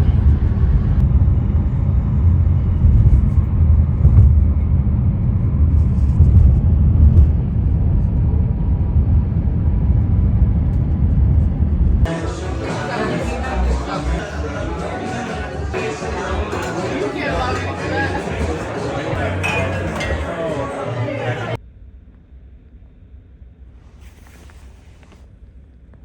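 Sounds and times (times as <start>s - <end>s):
moving vehicle rumble: 0.0s - 19.4s.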